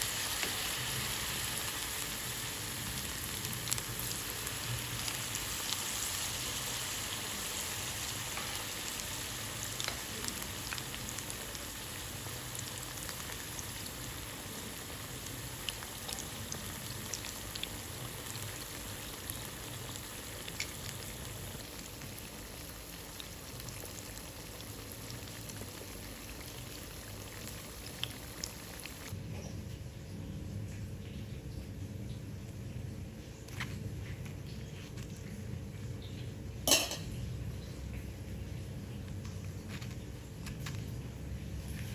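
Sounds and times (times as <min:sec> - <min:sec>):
food sizzling in hot oil: 0:00.0 - 0:29.2, 0:36.6 - 0:37.3.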